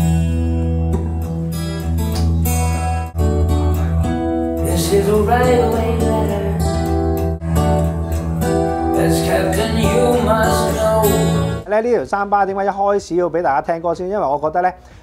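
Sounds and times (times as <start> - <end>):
plucked acoustic guitar: 0.0 - 11.7
steady bass line: 0.0 - 11.7
person singing: 4.6 - 7.4, 8.4 - 11.7.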